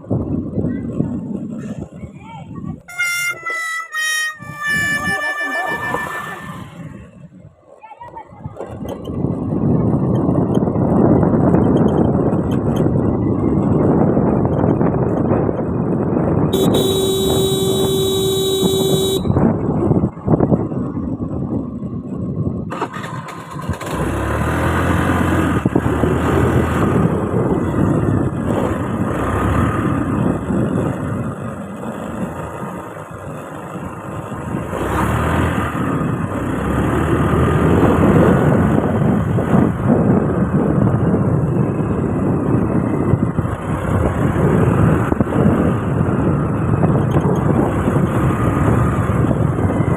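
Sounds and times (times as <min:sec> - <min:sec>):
motorcycle engine and road noise: 0:00.0 - 0:49.9
vehicle horn: 0:02.9 - 0:06.9, 0:16.6 - 0:19.5.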